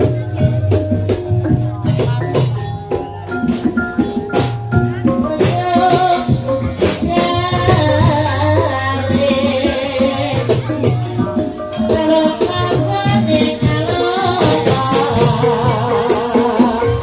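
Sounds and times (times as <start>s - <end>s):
gamelan music: 0.0s - 17.0s
rattling percussion: 0.0s - 17.0s
person singing: 4.9s - 17.0s.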